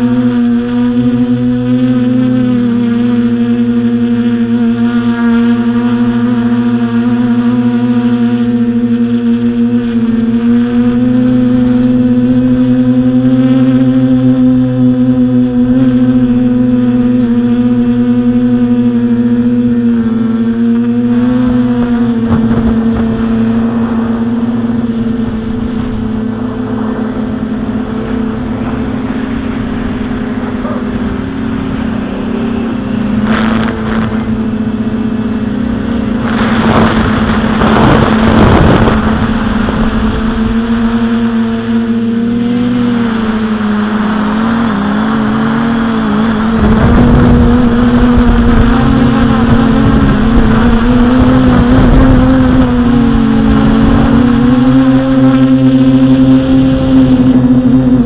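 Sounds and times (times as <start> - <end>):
drone propellers droning: 0.0 - 58.0
wind noise gusts: 15.6 - 58.0.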